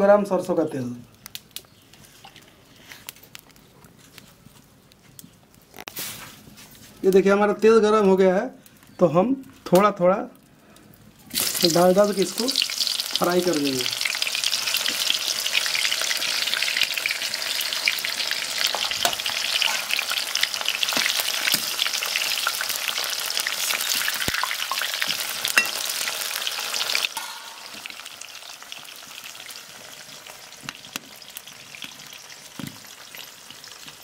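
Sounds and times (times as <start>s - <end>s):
food sizzling in hot oil: 11.2s - 34.0s.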